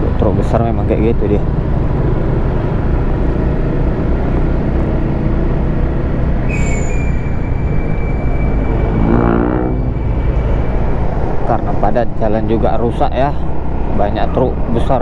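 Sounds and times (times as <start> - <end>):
motorcycle engine running: 0.0 - 6.5
short pitched tone: 6.4 - 11.2
thin high whine: 6.5 - 11.8.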